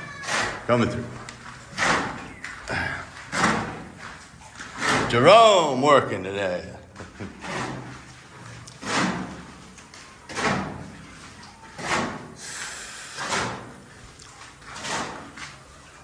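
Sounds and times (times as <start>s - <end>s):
trowel scraping cement: 0.0s - 5.8s, 7.0s - 16.0s.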